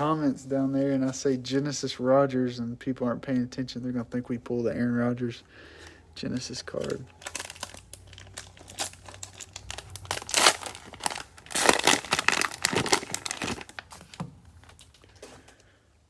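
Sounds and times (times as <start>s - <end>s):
cellophane wrapper crinkling: 6.3s - 15.7s.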